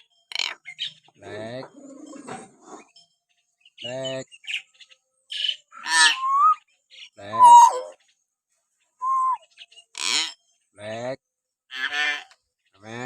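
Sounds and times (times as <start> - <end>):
myna whistling calls: 5.7 - 6.6, 7.2 - 8.0, 9.0 - 9.5
myna buzzy squawks: 7.3 - 8.0.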